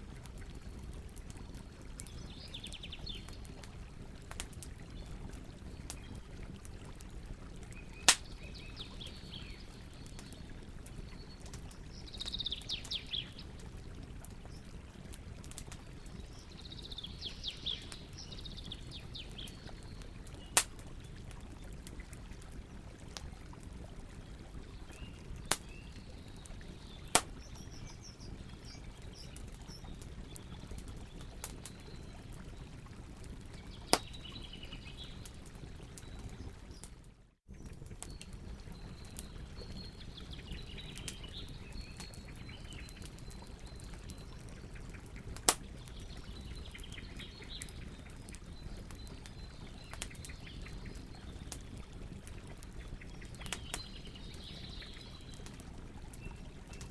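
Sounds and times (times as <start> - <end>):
campfire crackling: 0.0 - 56.9
burning wood popping: 2.8 - 8.6, 18.9 - 22.1, 24.9 - 31.8, 33.6 - 34.5, 40.8 - 46.0.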